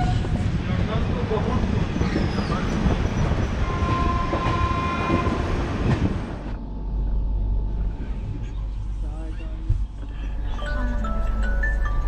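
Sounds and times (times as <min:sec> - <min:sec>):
train wheels rumbling on rails: 0:00.0 - 0:06.6.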